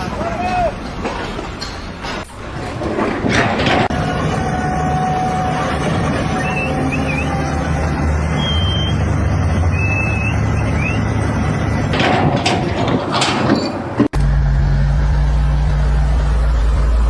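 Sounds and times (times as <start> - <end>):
low machinery drone: 0.0 - 17.0
clattering noise: 0.8 - 4.7, 11.8 - 14.4
deeper engine drone: 2.3 - 17.0.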